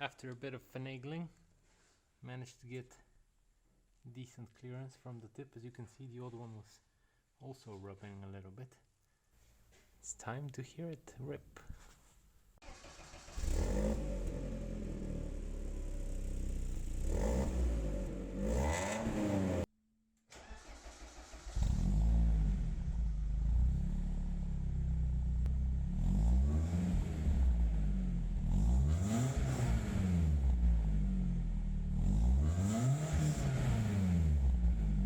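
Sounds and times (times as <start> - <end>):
car engine revving: 12.7 - 19.7, 21.0 - 35.0.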